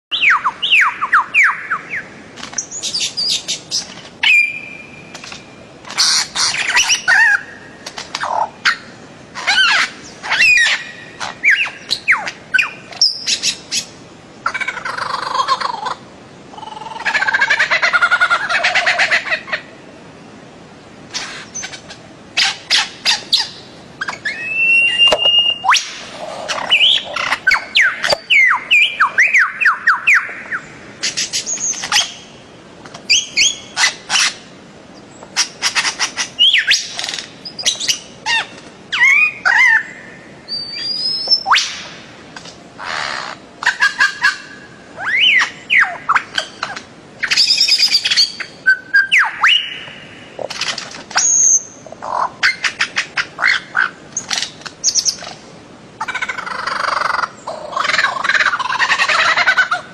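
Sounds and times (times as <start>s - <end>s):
birds chirping and whistling: 0.1s - 5.4s, 6.0s - 13.9s, 22.4s - 32.3s, 33.1s - 34.3s, 35.4s - 41.9s, 42.8s - 50.5s, 51.2s - 51.8s.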